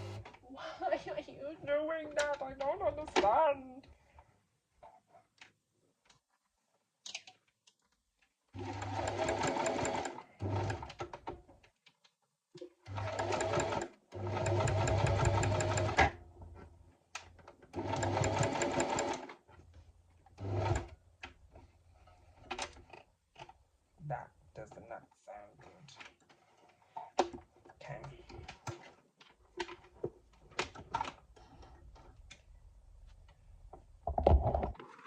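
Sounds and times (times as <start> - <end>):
electric sewing machine stitching: 0.0 - 0.3, 8.6 - 11.0, 12.9 - 16.2, 17.7 - 19.3, 20.4 - 20.9.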